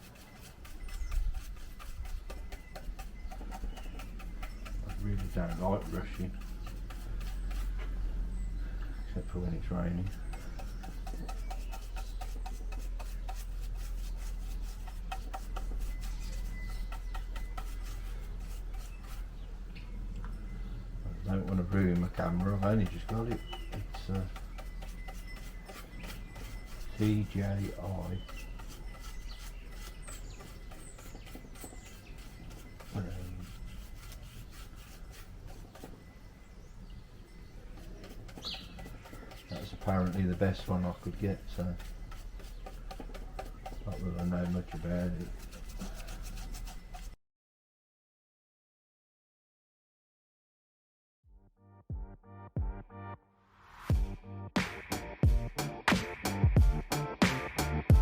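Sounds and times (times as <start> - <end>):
paintbrush dabbing on wood: 0.0 - 8.6, 9.2 - 19.6, 21.0 - 36.2, 37.4 - 47.2.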